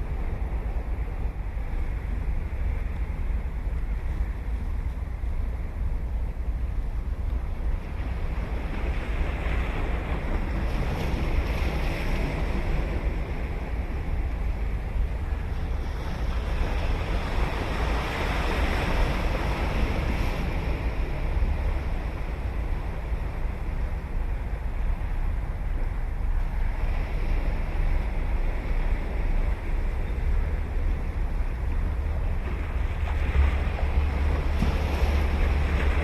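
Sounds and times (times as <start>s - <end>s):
low wind rumble on microphone: 0.0s - 36.0s
ocean surf washing onto beach: 7.3s - 36.0s.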